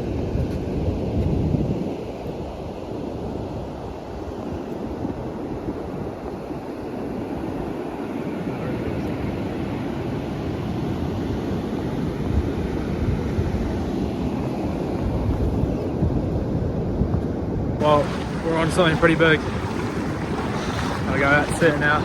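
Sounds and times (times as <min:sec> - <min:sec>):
wind buffeting microphone: 0:14.4 - 0:22.0
surf: 0:17.8 - 0:22.0.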